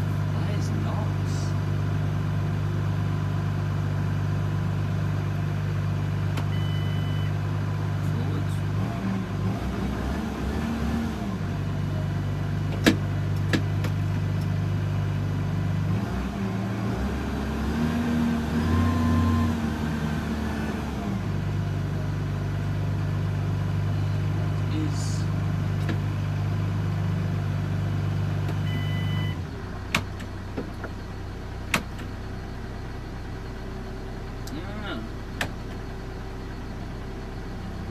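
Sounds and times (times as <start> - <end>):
tractor engine running: 21.0 - 37.9.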